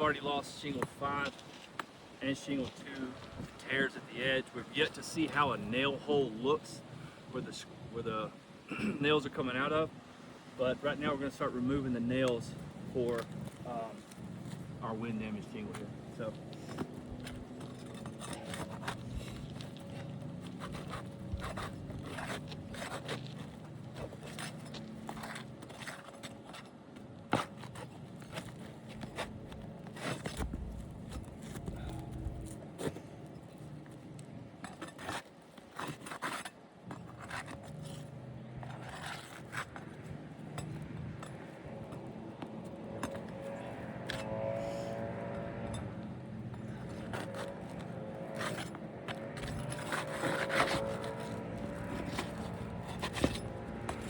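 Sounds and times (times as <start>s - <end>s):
metal tool scraping shingles: 11.8s - 33.8s, 34.6s - 41.5s, 46.6s - 54.0s.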